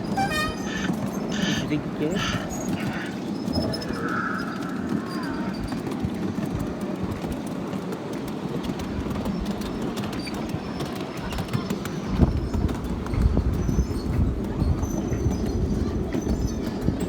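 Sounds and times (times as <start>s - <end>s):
miniature train wheels clattering: 0.0s - 17.0s.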